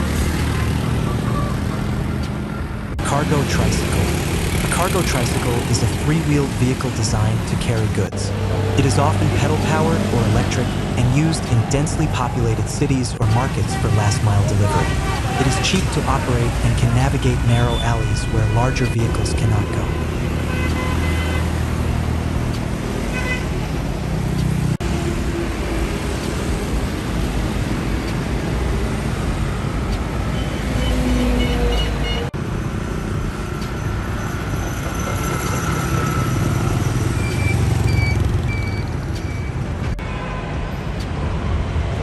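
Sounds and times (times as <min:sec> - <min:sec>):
vehicle engines rumbling: 0:00.0 - 0:42.0.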